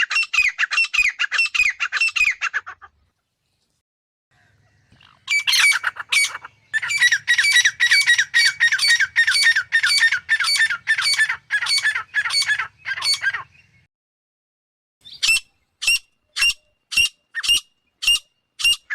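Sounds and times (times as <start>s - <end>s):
bird harsh ringing calls: 4.9s - 13.9s, 15.0s - 18.9s.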